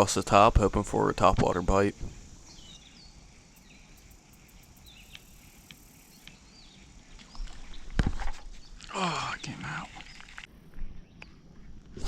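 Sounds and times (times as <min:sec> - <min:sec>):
high insect ticking: 0:00.0 - 0:07.3, 0:08.8 - 0:10.5
insect buzz: 0:00.4 - 0:10.8
faint bird chirps: 0:02.0 - 0:07.9, 0:08.5 - 0:11.4.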